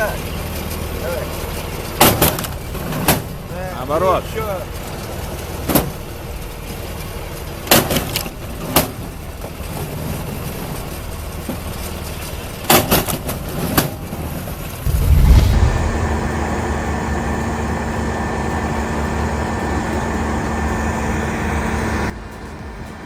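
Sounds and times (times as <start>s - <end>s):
log splitter engine running: 0.0s - 23.0s
low rumble: 14.9s - 17.5s.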